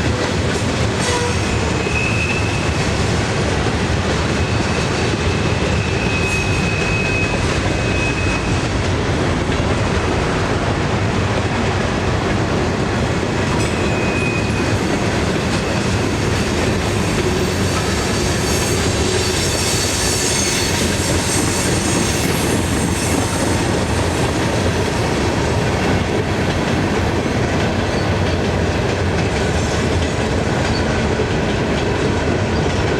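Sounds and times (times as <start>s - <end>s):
train wheels rumbling on rails: 0.0s - 32.9s
high wheel squeals: 1.0s - 2.8s, 4.4s - 8.6s, 13.6s - 14.9s, 16.7s - 24.3s.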